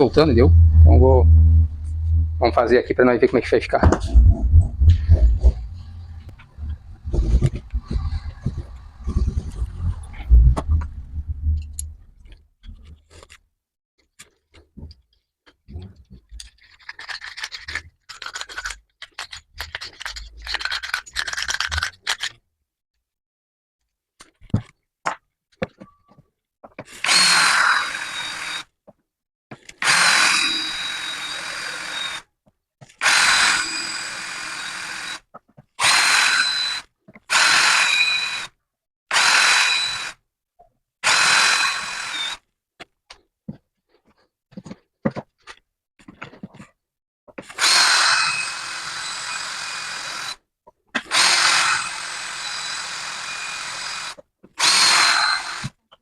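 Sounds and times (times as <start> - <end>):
electric drill drilling into metal: 27.0 - 28.7, 29.8 - 32.2, 33.0 - 35.2, 35.8 - 38.5, 39.1 - 40.2, 41.0 - 42.4, 47.6 - 50.4, 51.1 - 55.8.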